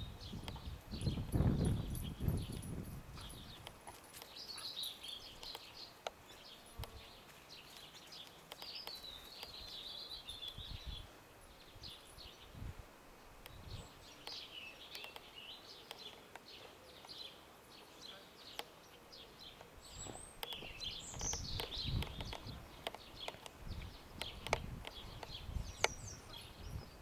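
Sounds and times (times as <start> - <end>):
songbirds singing faintly: 0.0 - 27.0
small clicks: 5.4 - 6.2, 8.1 - 9.8, 14.2 - 17.2, 20.4 - 23.6, 24.2 - 26.0.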